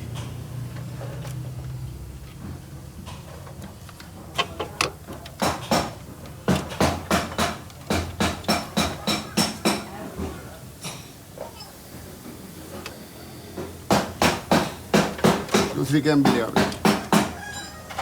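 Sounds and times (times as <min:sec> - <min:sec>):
hammer striking metal: 0:13.9 - 0:17.5.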